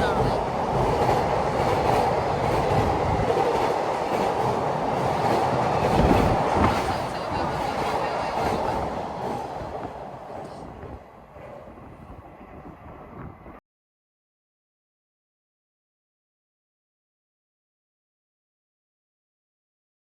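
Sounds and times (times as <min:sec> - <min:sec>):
freight train wheels rumbling: 0:00.0 - 0:13.6.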